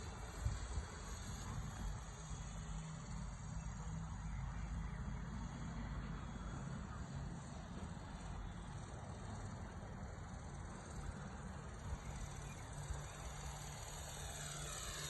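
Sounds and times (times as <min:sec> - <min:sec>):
rc helicopter motor and rotor hum: 0:00.0 - 0:15.0.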